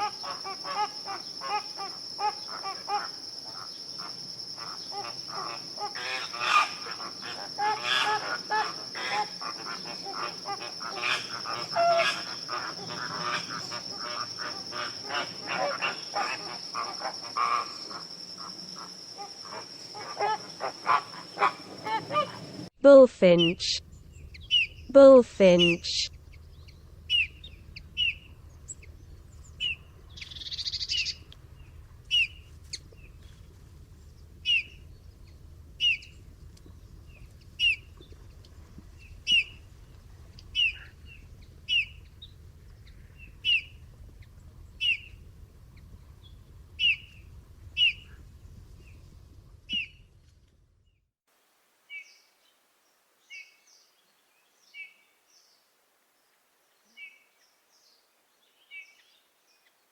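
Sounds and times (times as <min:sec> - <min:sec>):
low background hum: 0:04.6 - 0:50.7.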